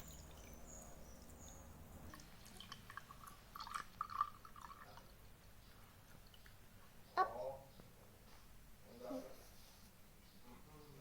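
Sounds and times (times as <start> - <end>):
liquid dripping and splashing: 0.0 - 5.4.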